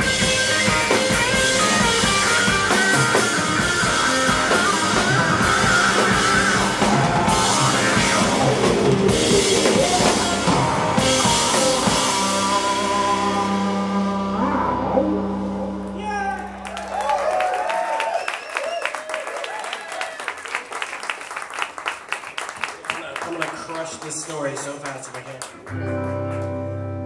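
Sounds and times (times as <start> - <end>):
drum kit playing: 0.0 - 16.9
electric guitar playing: 0.0 - 16.9, 25.6 - 27.0.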